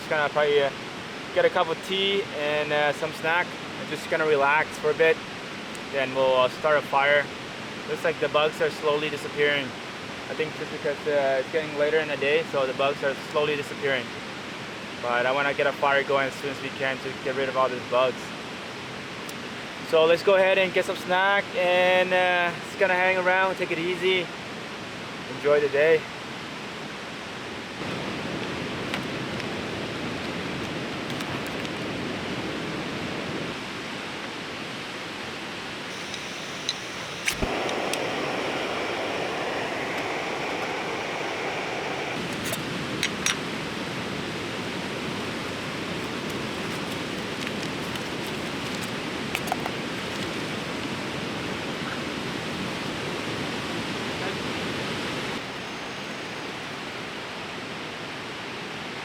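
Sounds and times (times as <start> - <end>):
river rushing: 32.1 - 48.0
short sharp clicks: 35.9 - 41.1.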